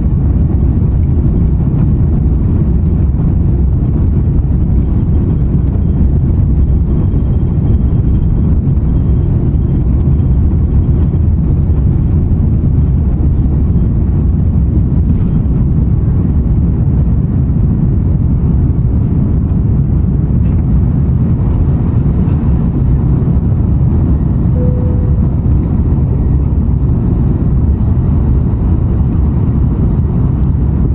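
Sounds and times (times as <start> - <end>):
jet engines roaring: 0.0 - 30.9
faint tone: 24.5 - 25.8.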